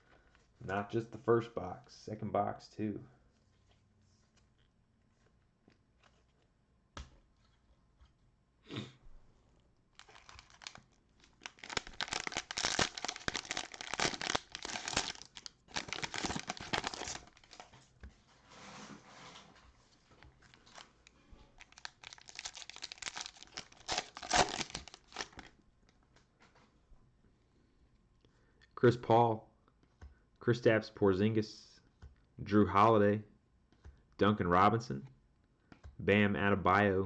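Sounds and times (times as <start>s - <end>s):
soft rustle: 3.1s - 6.5s, 17.2s - 21.8s
plastic wrappers crinkling and tearing: 9.9s - 17.9s, 20.1s - 25.6s.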